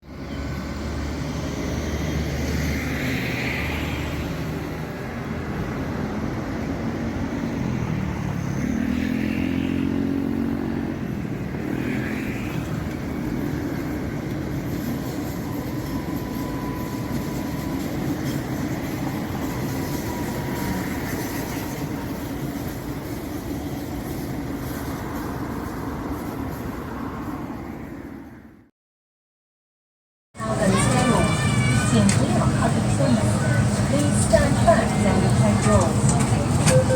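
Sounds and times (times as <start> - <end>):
train equipment hum: 12.5 - 28.4, 30.4 - 36.9.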